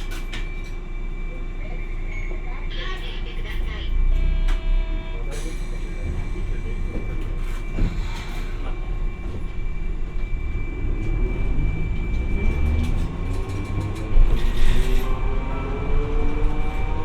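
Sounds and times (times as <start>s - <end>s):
tram wheels rumbling on rail: 0.0s - 17.0s
tram motor rising pitch: 6.0s - 17.0s.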